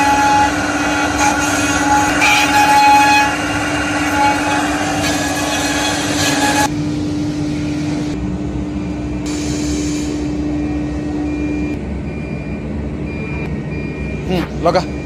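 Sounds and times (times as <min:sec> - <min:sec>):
hissing cutting noise: 0:00.0 - 0:06.7
milling machine motor humming: 0:00.0 - 0:13.6.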